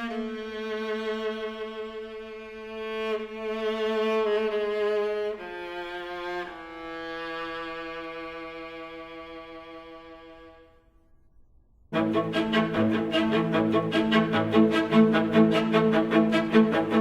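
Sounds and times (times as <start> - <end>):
bowed strings playing: 12.0 - 17.0.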